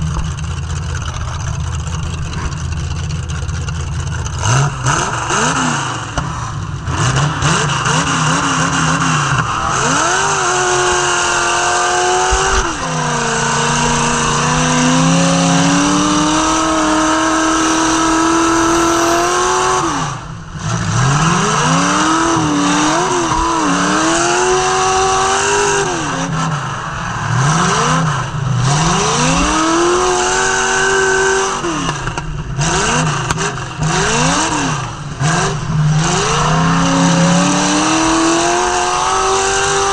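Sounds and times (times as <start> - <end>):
car engine revving hard: 0.0 - 39.9.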